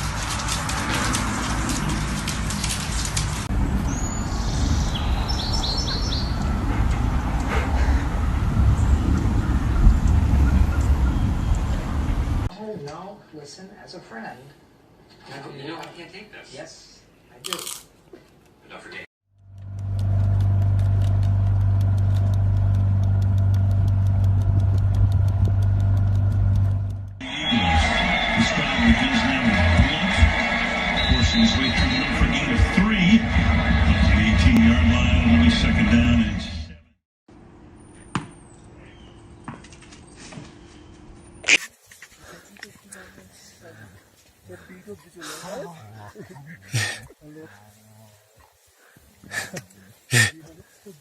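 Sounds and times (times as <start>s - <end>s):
engine humming: 0.0s - 12.5s, 19.3s - 36.2s, 40.5s - 51.0s
low rumble: 0.0s - 12.5s, 19.4s - 27.2s
rapid regular ticking: 19.4s - 27.2s
steady hiss with crackling: 41.5s - 51.0s.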